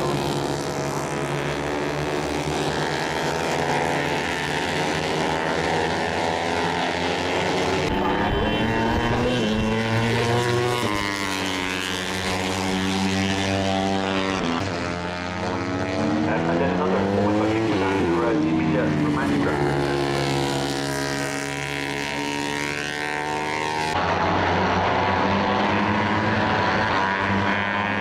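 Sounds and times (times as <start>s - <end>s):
racing motorcycle engines revving: 0.0s - 28.0s.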